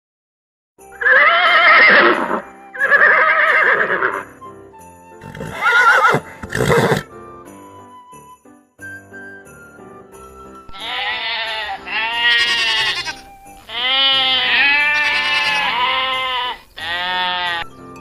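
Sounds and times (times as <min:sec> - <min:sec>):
background music: 0:00.8 - 0:18.0
horse whinnying: 0:01.0 - 0:04.3, 0:05.2 - 0:07.1, 0:10.8 - 0:17.7.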